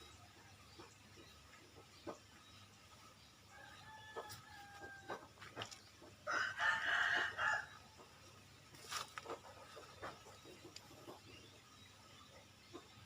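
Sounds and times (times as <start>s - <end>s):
birds chirping: 0.0s - 13.0s
rooster crowing: 6.3s - 7.7s.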